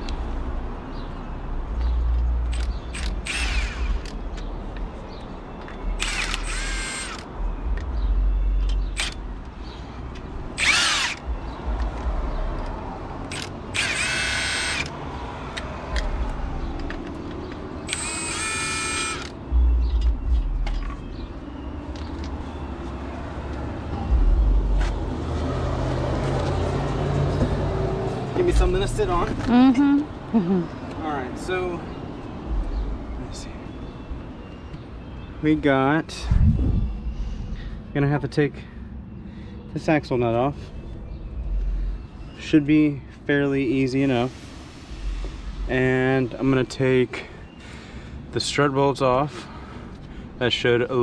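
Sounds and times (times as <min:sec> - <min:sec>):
cordless power tool whirring: 0:03.0 - 0:04.1, 0:06.0 - 0:07.2, 0:10.6 - 0:11.2, 0:13.3 - 0:14.9, 0:17.9 - 0:19.3.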